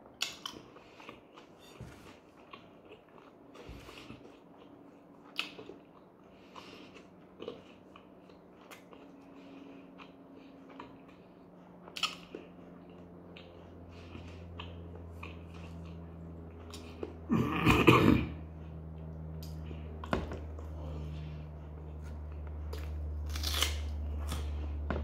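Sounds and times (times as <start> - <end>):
low steady hum: 0.0 - 25.0
man chewing food: 0.0 - 25.0
loud throat noise: 17.3 - 18.4.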